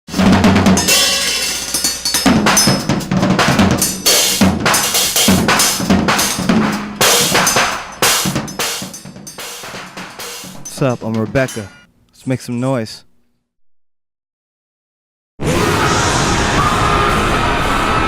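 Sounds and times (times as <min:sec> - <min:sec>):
low drum tones ringing: 0:00.2 - 0:11.9.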